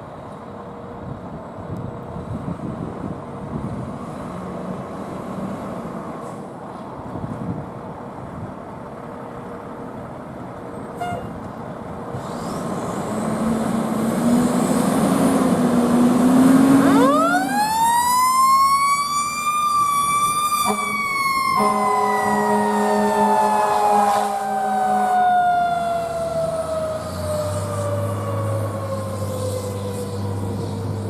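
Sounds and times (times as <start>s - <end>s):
fire engine engine: 0.0s - 31.0s
horn blast: 20.6s - 25.2s.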